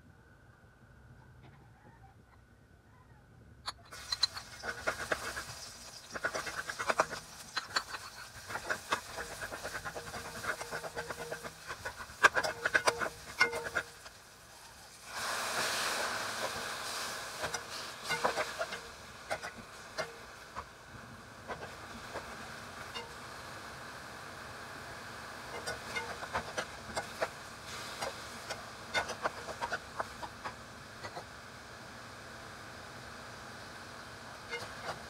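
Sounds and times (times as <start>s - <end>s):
food sizzling in hot oil: 3.7s - 35.0s
spatula scraping a pan: 3.9s - 14.2s, 16.4s - 20.2s, 25.5s - 31.2s
meat sizzling in hot oil: 3.9s - 35.0s.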